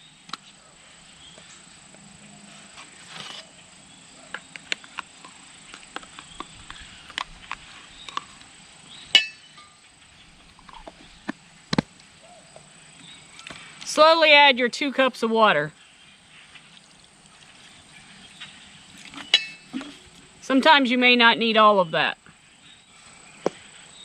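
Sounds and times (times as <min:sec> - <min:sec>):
ringing clink: 0:09.2 - 0:09.7, 0:19.3 - 0:19.7.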